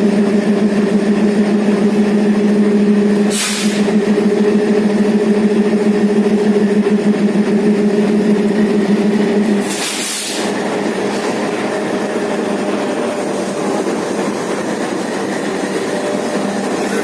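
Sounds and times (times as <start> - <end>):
diesel locomotive droning: 0.0 - 17.0
air hiss: 3.3 - 3.8, 9.6 - 10.5.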